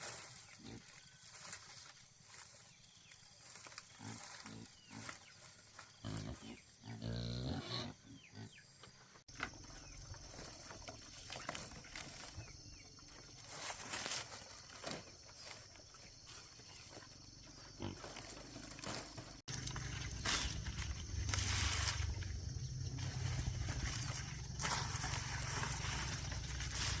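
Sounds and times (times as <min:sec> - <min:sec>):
pigs grunting and squealing: 0:05.8 - 0:08.8.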